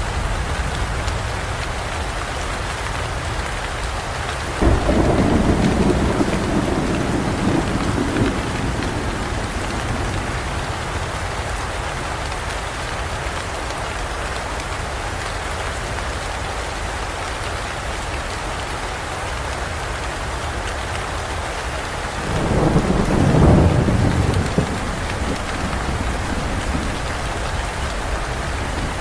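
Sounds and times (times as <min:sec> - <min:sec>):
steady rain pouring: 0:00.0 - 0:29.0
low rumble of thunder: 0:04.6 - 0:11.8, 0:22.2 - 0:29.0.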